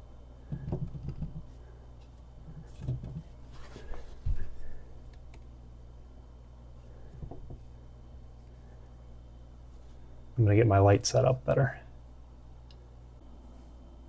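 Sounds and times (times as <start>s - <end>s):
light knocks and rattles of handling: 0.5s - 4.7s.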